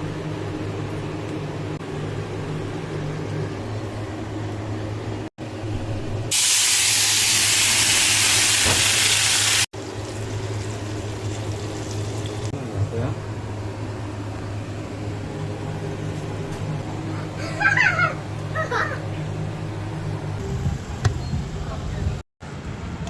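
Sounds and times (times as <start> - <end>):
cooking steam hissing: 6.3 - 12.5.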